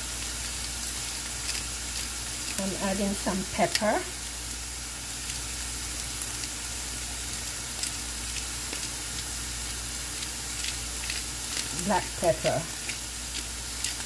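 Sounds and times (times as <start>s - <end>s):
vegetables sizzling in oil: 0.0s - 14.0s
faint crackles: 7.7s - 14.0s.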